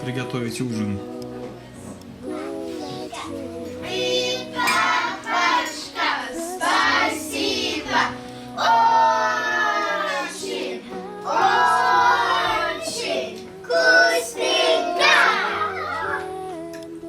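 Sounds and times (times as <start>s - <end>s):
children singing: 0.0s - 17.0s
musical accompaniment: 0.0s - 17.0s.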